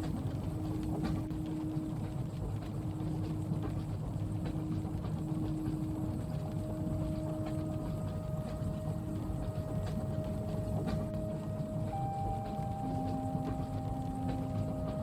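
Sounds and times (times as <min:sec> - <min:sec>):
rain ticking: 0:00.0 - 0:15.0
train carriage rumble: 0:00.0 - 0:15.0
faint held hums: 0:04.7 - 0:15.0.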